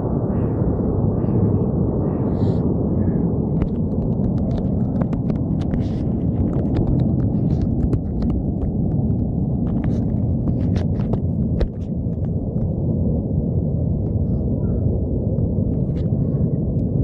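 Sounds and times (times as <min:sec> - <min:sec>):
aircraft engine rumble: 0:00.0 - 0:17.0.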